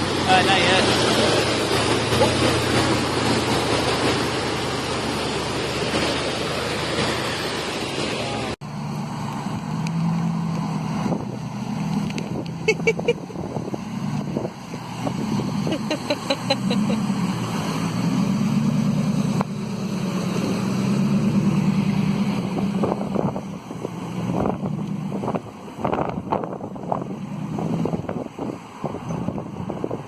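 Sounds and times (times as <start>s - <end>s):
engine running: 0.0s - 30.0s
wind buffeting microphone: 10.6s - 16.2s, 20.2s - 30.0s.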